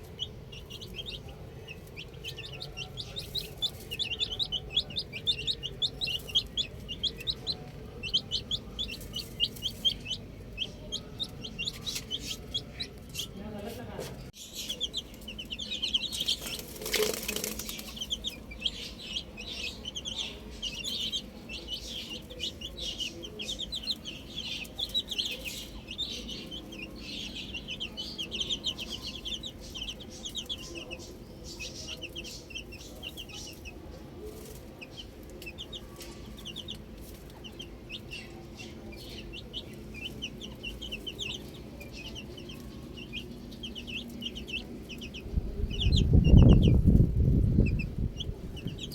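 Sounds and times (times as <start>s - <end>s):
baby chicks peeping: 0.0s - 48.9s.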